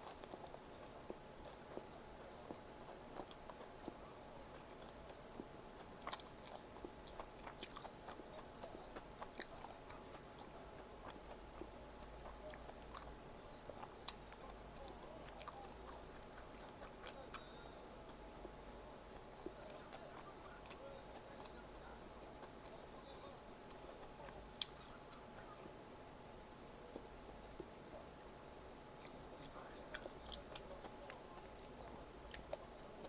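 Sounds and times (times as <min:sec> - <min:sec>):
person chewing and biting food: 0:00.0 - 0:21.7, 0:32.3 - 0:32.8.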